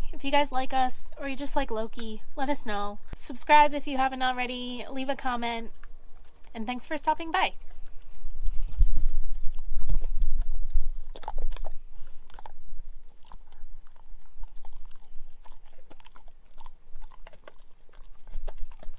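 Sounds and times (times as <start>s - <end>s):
dog chewing: 5.0s - 18.9s
teeth crunching on something hard: 5.7s - 6.6s, 7.6s - 18.9s.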